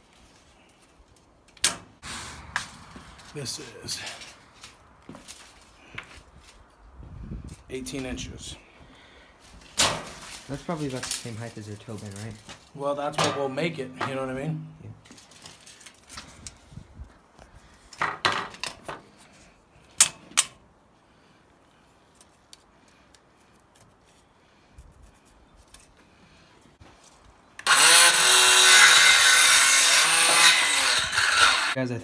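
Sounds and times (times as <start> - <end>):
power tool motor whine: 27.6 - 31.8.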